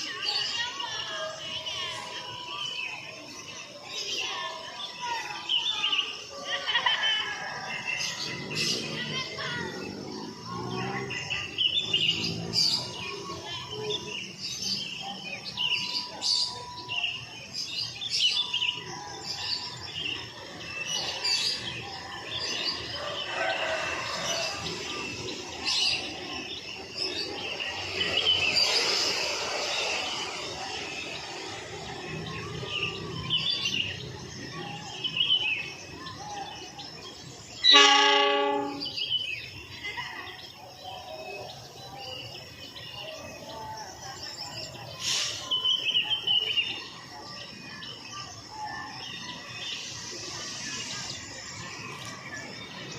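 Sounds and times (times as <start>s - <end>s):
birds chirping: 0.0s - 52.9s
broad rushing noise: 19.9s - 38.9s
locomotive horn blast: 37.6s - 39.0s.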